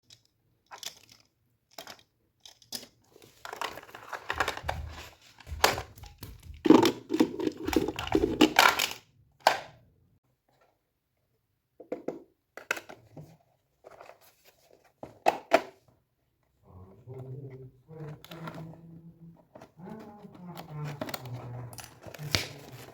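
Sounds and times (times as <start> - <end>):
packaging crinkling and tearing: 3.1 - 9.0, 19.9 - 22.9.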